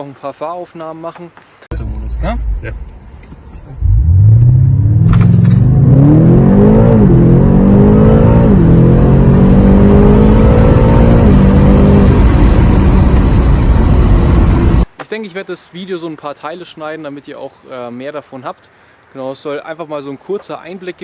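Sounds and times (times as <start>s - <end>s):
car engine revving: 3.7s - 14.9s.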